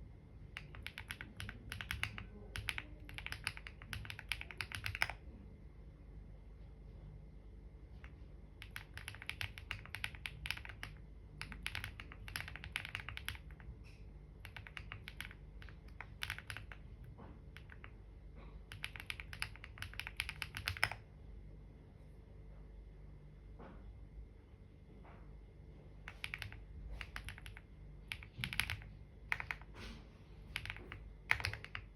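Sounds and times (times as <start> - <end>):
typing on computer keyboard: 0.5 - 5.3, 7.9 - 18.0, 18.6 - 21.1, 26.1 - 29.8, 30.5 - 31.9.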